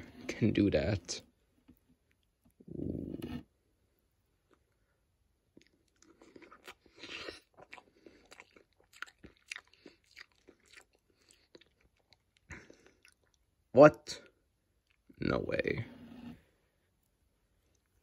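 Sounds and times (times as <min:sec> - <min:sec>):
person chewing with mouth clicks: 0:05.5 - 0:13.4.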